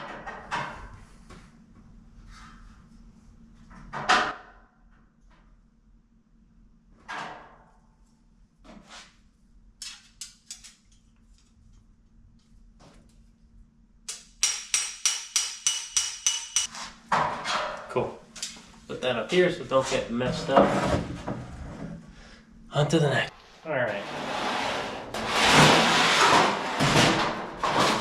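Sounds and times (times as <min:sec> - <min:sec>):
hammer striking sheet steel: 0:14.1 - 0:16.7.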